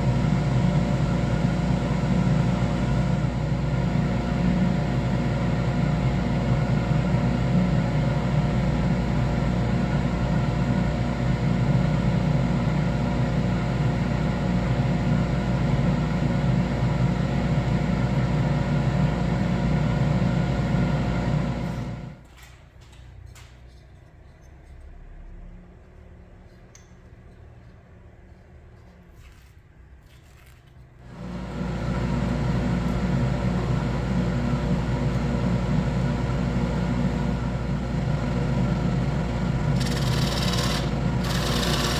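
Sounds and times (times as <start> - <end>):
electric workshop machine humming: 0.0 - 22.2, 31.1 - 41.9.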